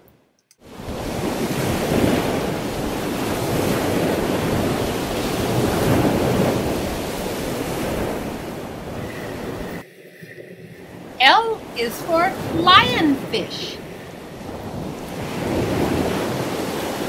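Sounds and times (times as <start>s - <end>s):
wind noise on microphone: 0.7s - 9.8s, 13.8s - 17.0s.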